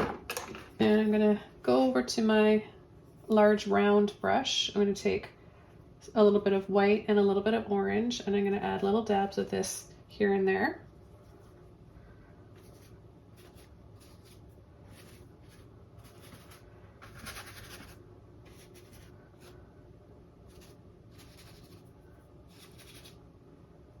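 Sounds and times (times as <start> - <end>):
paintbrush strokes on canvas: 12.6 - 19.6.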